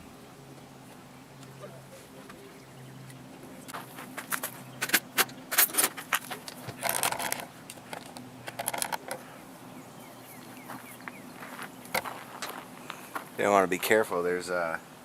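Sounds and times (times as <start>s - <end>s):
tools and metal parts clattering: 4.3s - 9.2s.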